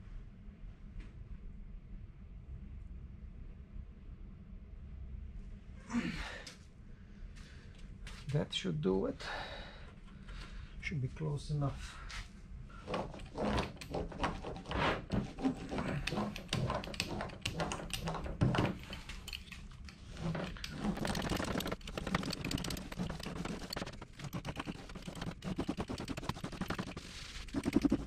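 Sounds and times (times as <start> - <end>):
hands rubbing carpet: 20.1 - 28.0.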